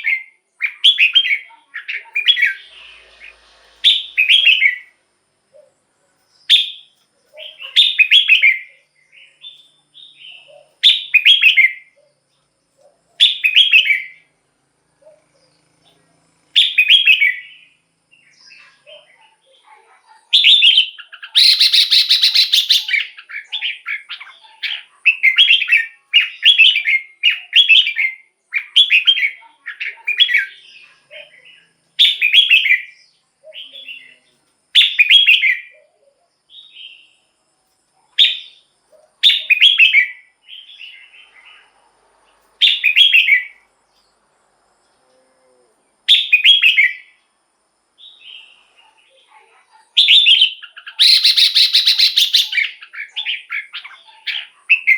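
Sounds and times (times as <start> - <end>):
bird warbling: 20.4 - 26.7, 50.0 - 54.9.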